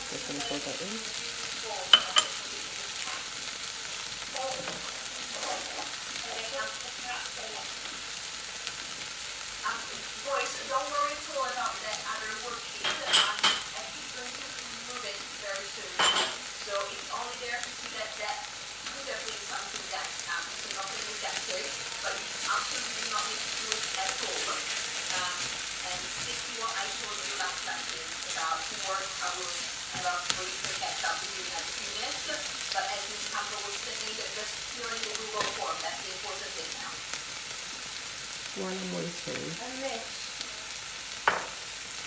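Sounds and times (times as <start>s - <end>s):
vegetables sizzling in a pan: 0.0s - 42.0s.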